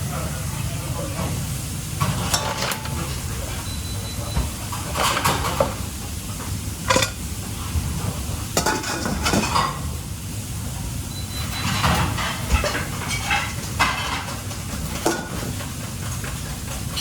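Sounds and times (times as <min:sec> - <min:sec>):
low background hum: 0:00.0 - 0:17.0
dishes and pans clattering: 0:02.0 - 0:03.3, 0:04.2 - 0:07.3, 0:08.0 - 0:09.9, 0:11.4 - 0:17.0.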